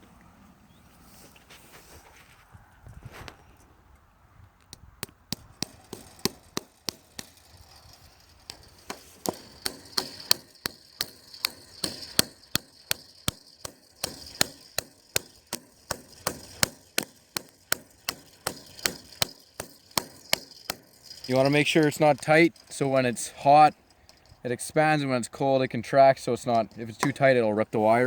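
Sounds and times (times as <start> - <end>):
hammer driving nail into wood: 5.0 - 22.2.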